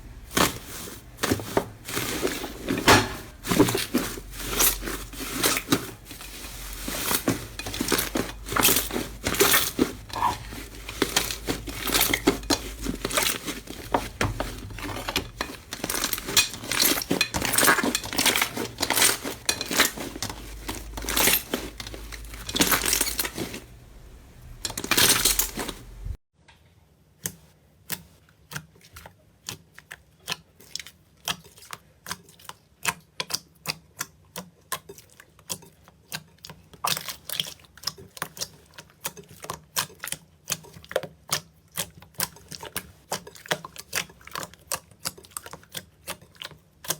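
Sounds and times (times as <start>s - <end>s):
slime squishing and crackling: 0.0s - 23.8s.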